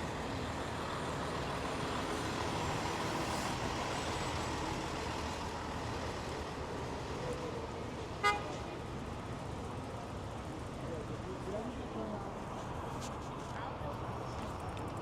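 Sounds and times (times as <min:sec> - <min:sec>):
city street traffic: 0:00.0 - 0:15.0.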